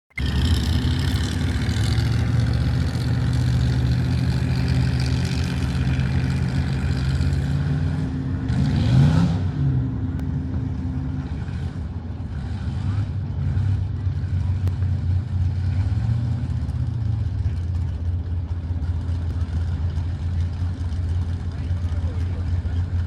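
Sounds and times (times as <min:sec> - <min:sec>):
truck engine running hard: 0:00.1 - 0:23.0.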